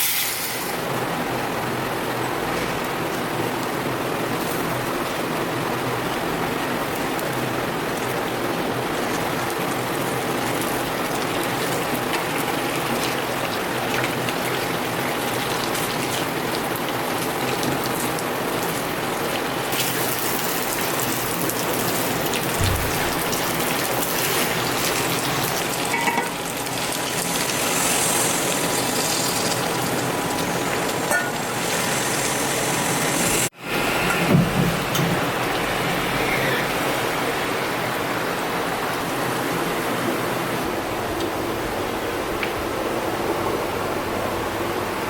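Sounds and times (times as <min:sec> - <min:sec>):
food sizzling in oil: 0:09.0 - 0:34.0
low thump: 0:22.6 - 0:23.4.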